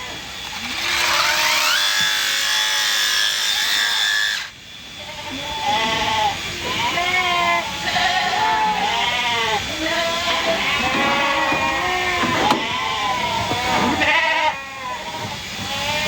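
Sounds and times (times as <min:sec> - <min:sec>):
sheep bleating: 0:05.1 - 0:16.0.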